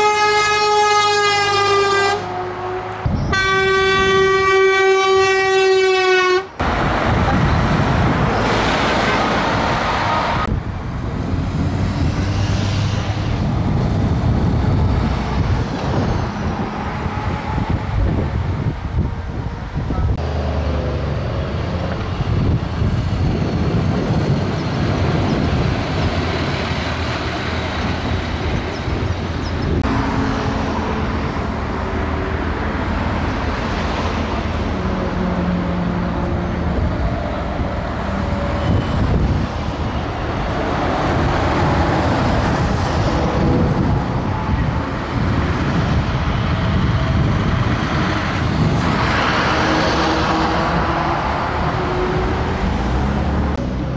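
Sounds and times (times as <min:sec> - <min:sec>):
truck horn toots: 0:00.0 - 0:06.6
heavy trucks driving past: 0:00.0 - 0:53.9
road noise: 0:00.0 - 0:53.9.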